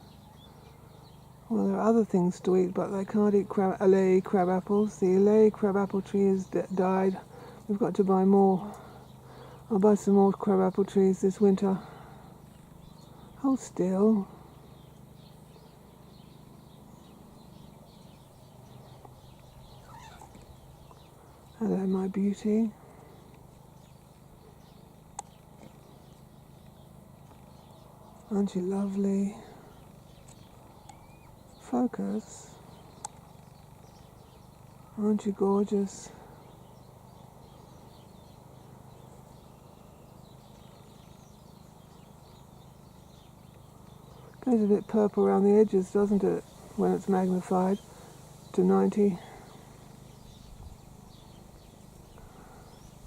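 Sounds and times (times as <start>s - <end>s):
low steady hum: 0.0s - 53.0s
faint high bird chirps: 12.2s - 53.0s.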